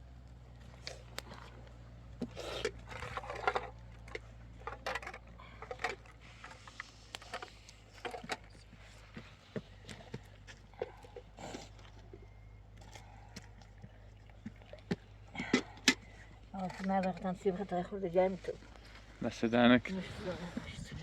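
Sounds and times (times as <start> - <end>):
knocks clatters and scraping: 2.2 - 11.3.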